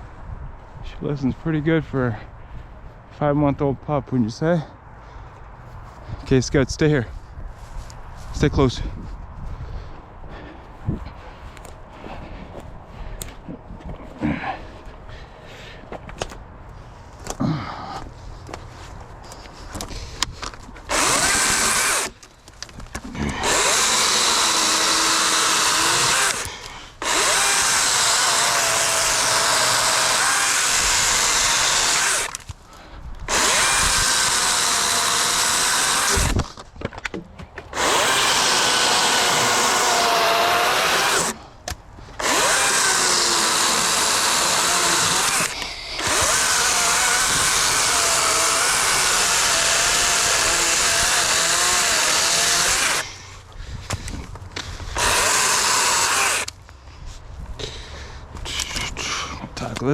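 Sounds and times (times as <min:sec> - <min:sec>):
battery chainsaw cutting logs: 0:20.8 - 0:36.6, 0:37.7 - 0:54.0, 0:54.6 - 0:56.6.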